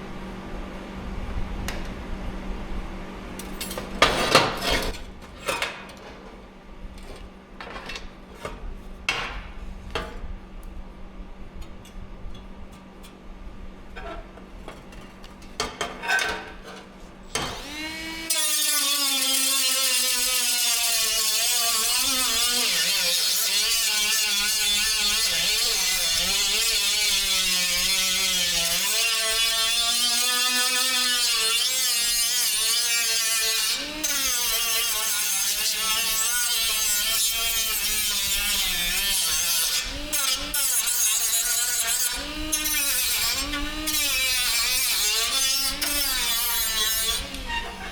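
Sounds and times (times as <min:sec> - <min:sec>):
electric grinder on metal: 0:17.3 - 0:47.9.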